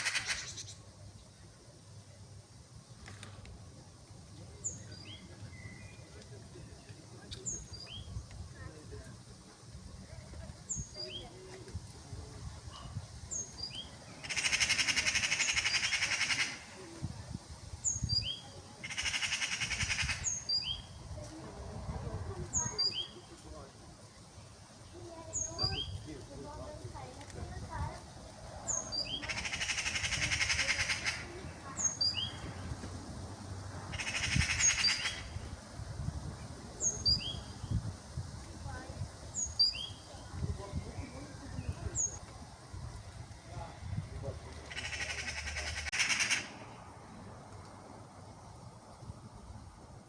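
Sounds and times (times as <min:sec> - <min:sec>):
magpie rattling chatter: 0:00.0 - 0:00.7, 0:14.2 - 0:16.8, 0:18.8 - 0:20.7, 0:28.7 - 0:32.5, 0:33.9 - 0:35.4, 0:44.7 - 0:46.6
small bird high chirps: 0:31.7 - 0:32.5, 0:39.4 - 0:40.1.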